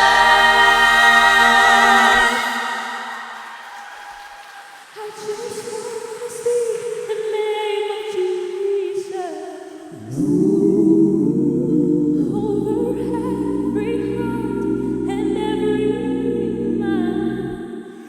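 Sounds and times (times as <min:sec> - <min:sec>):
voices singing in harmony: 0:00.0 - 0:03.6, 0:09.9 - 0:18.0
deep bass: 0:10.1 - 0:17.6.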